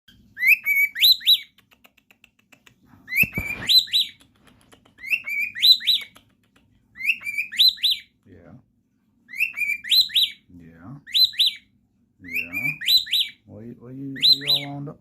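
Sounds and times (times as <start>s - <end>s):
pet bird whistling rising notes: 7.0s - 8.1s.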